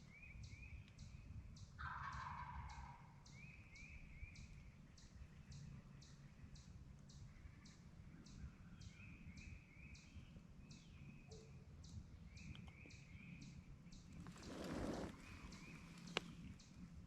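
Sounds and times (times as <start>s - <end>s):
small birds calling: 0.0s - 17.0s
short rustle: 14.2s - 16.3s.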